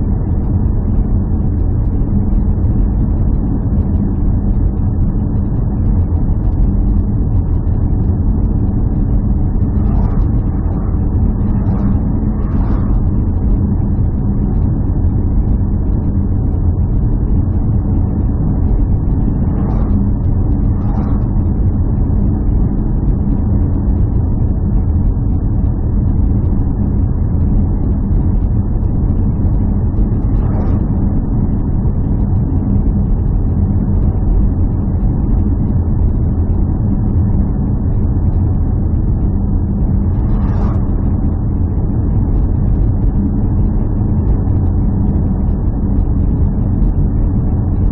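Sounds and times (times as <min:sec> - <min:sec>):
engine droning steadily: 0:00.0 - 0:47.9.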